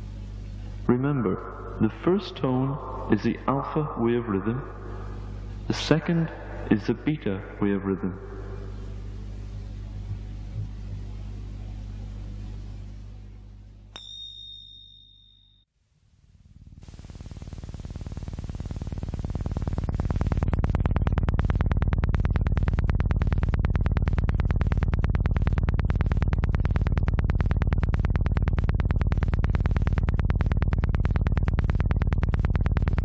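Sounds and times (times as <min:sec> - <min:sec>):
pulsing electronic tone: 0:16.8 - 0:33.0.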